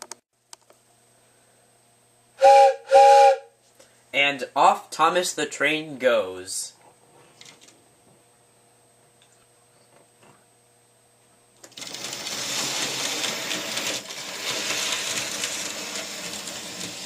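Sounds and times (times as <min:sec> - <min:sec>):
wheels clattering on rails: 0:11.7 - 0:17.0.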